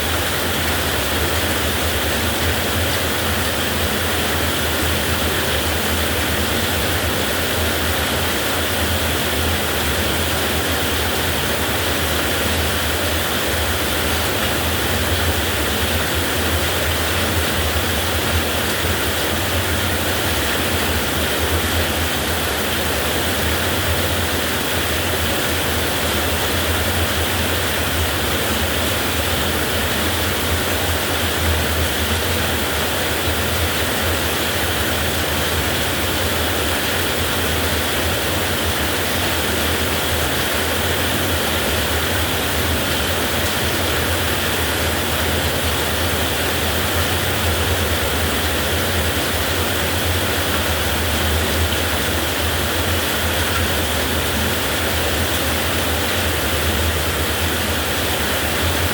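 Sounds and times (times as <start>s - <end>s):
heavy rain falling: 0.0s - 58.9s.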